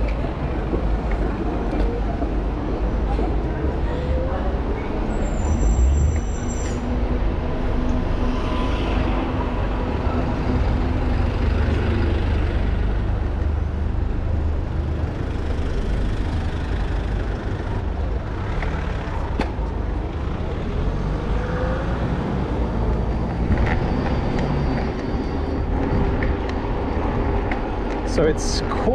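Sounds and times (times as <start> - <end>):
passing vehicle engines: 0.0 - 28.9
wind and road noise: 0.0 - 28.9
brief high squeal: 5.1 - 6.9.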